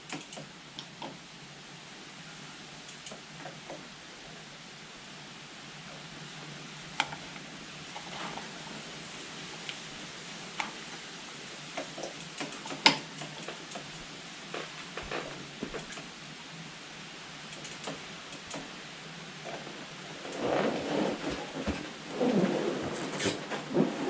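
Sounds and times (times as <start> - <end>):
hand tools clicking and tapping: 0.0 - 1.1, 11.8 - 16.0.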